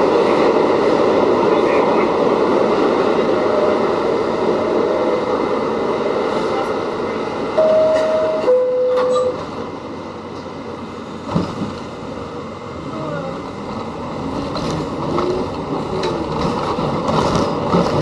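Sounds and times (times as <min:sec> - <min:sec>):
subway train noise: 0:00.0 - 0:18.0
two-note door chime: 0:07.6 - 0:09.4.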